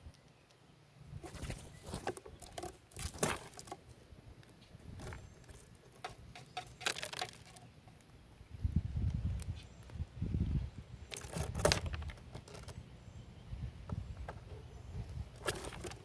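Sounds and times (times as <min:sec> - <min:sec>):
birds pecking at seed: 0:00.0 - 0:08.2, 0:10.9 - 0:13.1, 0:13.8 - 0:16.0.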